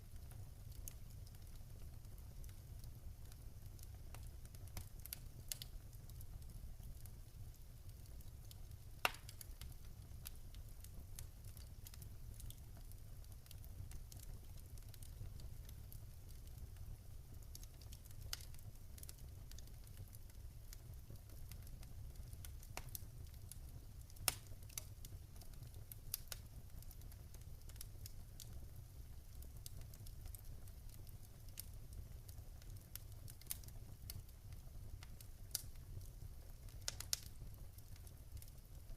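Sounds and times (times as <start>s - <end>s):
low fire rumble: 0.0s - 38.9s
wood fire crackling: 0.0s - 38.9s
sharp fire pops: 9.0s - 9.7s.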